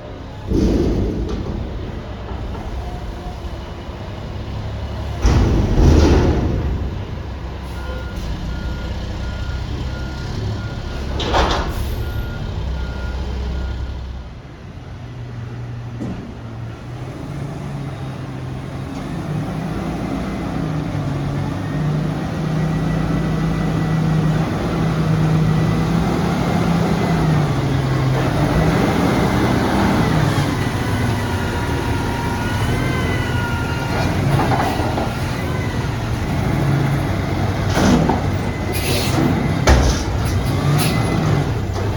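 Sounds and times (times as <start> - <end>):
diesel engine revving: 0.0 - 14.5, 15.1 - 41.9
truck reversing beeper: 6.0 - 15.9, 20.4 - 41.9.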